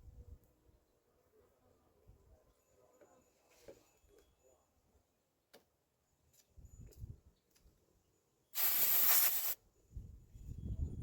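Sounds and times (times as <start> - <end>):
sharp burst of hiss: 8.6 - 9.6.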